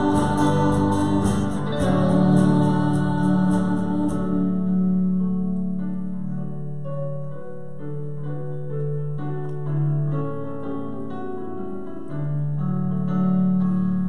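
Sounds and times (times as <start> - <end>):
piano playing slow chords: 0.0 - 14.0.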